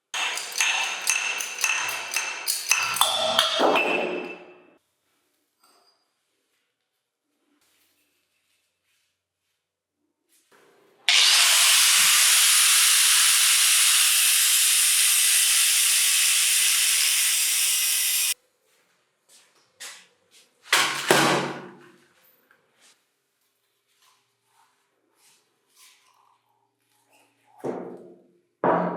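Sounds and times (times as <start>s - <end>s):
pressurised air hissing: 11.1s - 18.4s.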